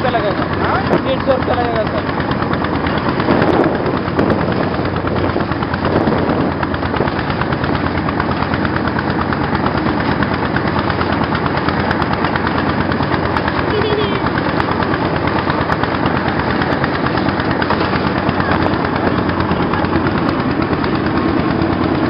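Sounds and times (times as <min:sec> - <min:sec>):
boat diesel engine knocking: 0:00.0 - 0:22.0.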